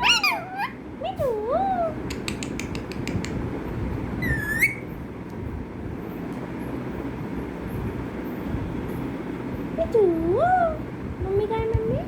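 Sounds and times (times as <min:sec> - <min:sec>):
parrot squeak: 0:00.0 - 0:00.8, 0:04.2 - 0:05.0
low background rumble: 0:00.0 - 0:12.0.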